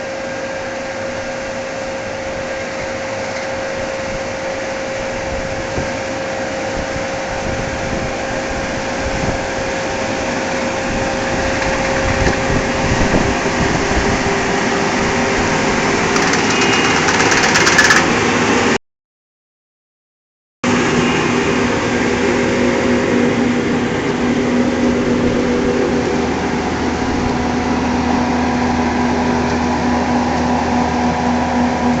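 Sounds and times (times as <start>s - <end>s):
harvesting machine engine hum: 9.8s - 18.5s
mechanical rattle: 11.4s - 12.5s, 16.0s - 18.3s.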